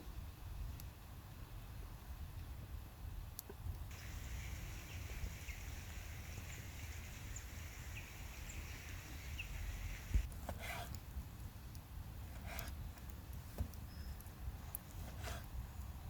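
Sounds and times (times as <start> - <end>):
faint steady hiss: 0.0 - 16.0
faint bird chirps: 3.9 - 10.3, 13.8 - 14.3.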